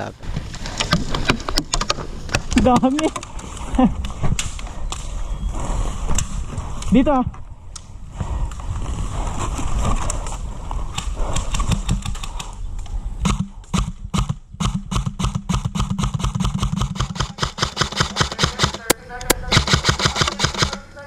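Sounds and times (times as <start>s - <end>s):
airsoft gun rapid shots: 13.2s - 20.9s.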